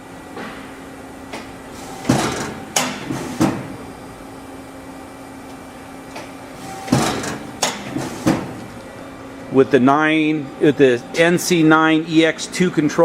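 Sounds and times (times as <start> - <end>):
hydraulic pump hum: 0.0 - 13.0
press ram clunks: 1.9 - 3.8, 6.7 - 8.8.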